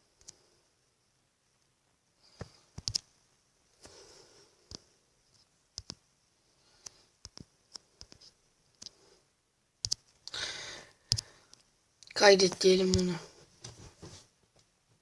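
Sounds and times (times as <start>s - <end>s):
fingertips tapping a touchscreen: 2.3s - 3.1s, 4.6s - 6.1s, 6.7s - 9.1s, 9.8s - 10.4s, 11.0s - 11.7s, 12.4s - 13.9s.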